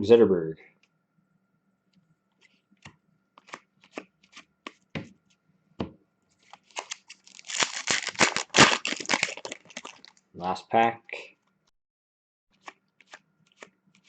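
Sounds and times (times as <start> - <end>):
trading cards flicked by hand: 2.8 - 4.8.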